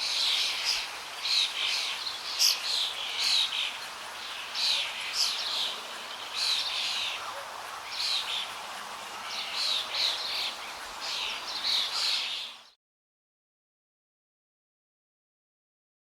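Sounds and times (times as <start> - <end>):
faint outdoor hiss: 0.0 - 12.8.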